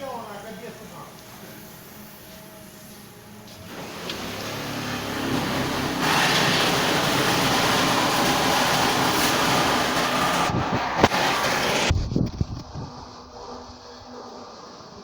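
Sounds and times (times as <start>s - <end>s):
car engine running: 3.7s - 11.9s.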